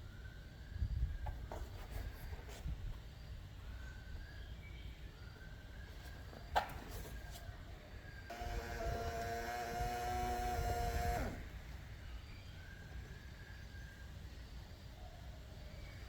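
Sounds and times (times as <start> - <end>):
small motor whining: 8.3 - 11.9.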